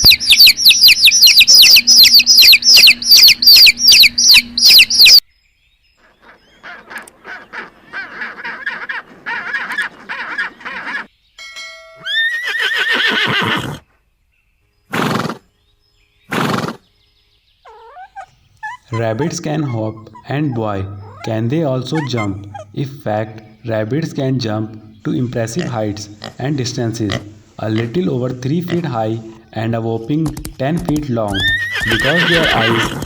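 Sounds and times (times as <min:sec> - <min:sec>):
high repeated animal chirps: 0:00.0 - 0:05.2, 0:17.6 - 0:22.8, 0:25.0 - 0:29.6, 0:30.2 - 0:33.0
rising and falling animal call: 0:00.0 - 0:05.2, 0:06.0 - 0:11.1, 0:12.0 - 0:13.9, 0:17.6 - 0:23.6, 0:31.3 - 0:33.0
short noisy animal calls: 0:06.0 - 0:11.1, 0:17.6 - 0:22.8, 0:31.4 - 0:33.0.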